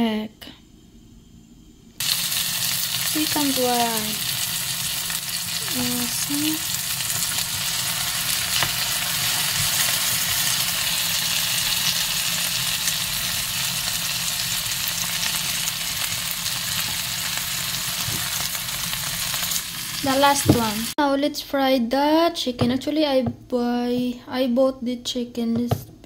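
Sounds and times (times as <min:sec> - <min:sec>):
eggplant frying in oil: 0:02.0 - 0:21.0.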